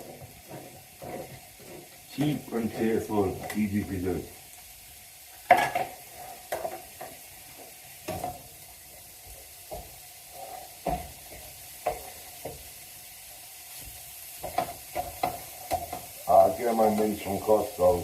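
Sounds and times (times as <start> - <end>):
utensil scraping and knocking pan: 0.0 - 3.6
mince sizzling in a pan: 0.0 - 18.0.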